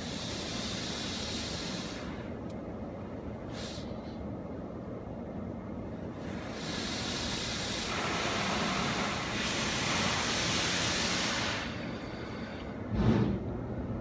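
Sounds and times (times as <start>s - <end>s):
water spraying hiss: 0.0s - 2.2s, 6.2s - 12.1s
thump: 12.9s - 13.5s.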